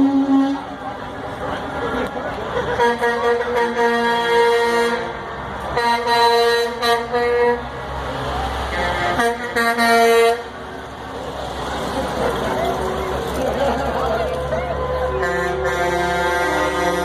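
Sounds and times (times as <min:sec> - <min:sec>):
truck air horn blasts: 0:00.0 - 0:00.8, 0:02.7 - 0:07.8, 0:08.7 - 0:10.6, 0:14.7 - 0:17.0
truck engines rumbling: 0:00.0 - 0:17.0.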